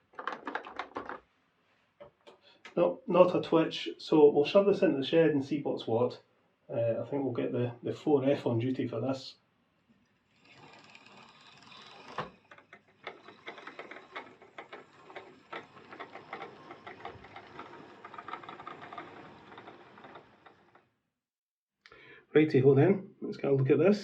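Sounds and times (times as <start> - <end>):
model train motor whirring: 10.3 - 20.8
wheels clicking over rail joints: 10.4 - 21.0.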